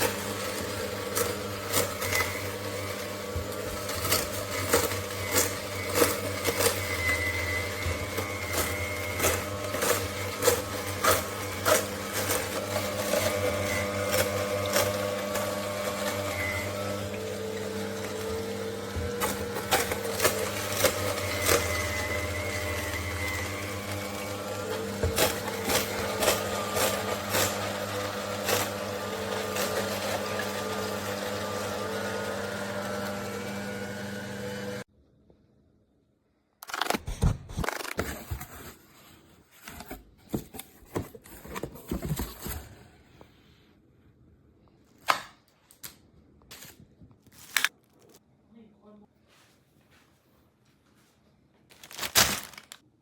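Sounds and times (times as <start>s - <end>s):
juicer motor hum: 0.0s - 34.9s.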